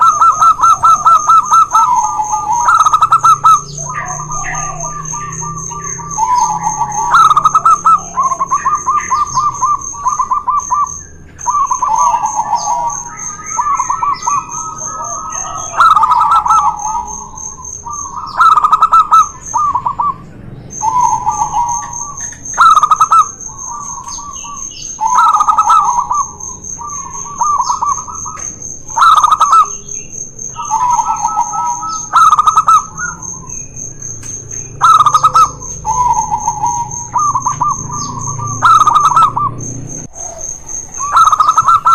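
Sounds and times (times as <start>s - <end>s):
doves trilled cooing: 0.0s - 41.9s
high shrill pulsing tone: 0.0s - 41.9s.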